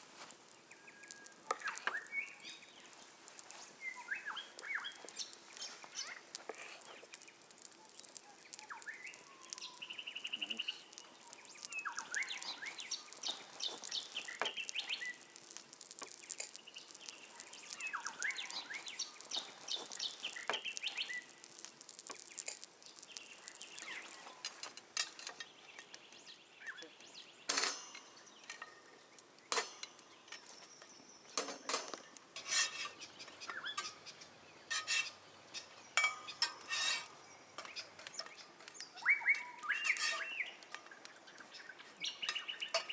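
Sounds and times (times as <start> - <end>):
birds chirping and calling: 3.8 - 7.1, 7.9 - 15.3, 16.7 - 21.4, 23.0 - 24.6, 32.5 - 42.9
cutlery and dishes clinking: 27.5 - 28.8, 29.5 - 30.6, 31.4 - 33.0, 34.7 - 38.4, 39.8 - 41.0.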